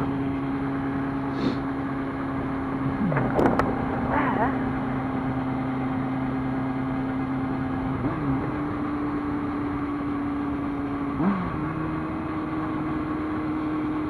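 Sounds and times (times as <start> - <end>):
motorcycle engine running: 0.0 - 14.0
wind noise: 2.8 - 6.2.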